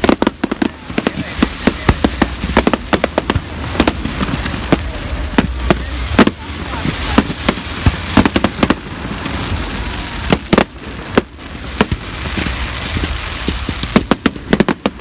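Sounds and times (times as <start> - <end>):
firework crackling hiss: 0.0 - 15.0
firework shells bursting: 10.2 - 15.0.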